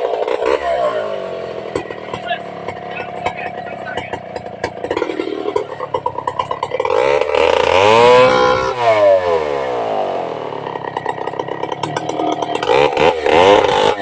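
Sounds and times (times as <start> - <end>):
chainsaw engine revving: 0.0 - 14.0.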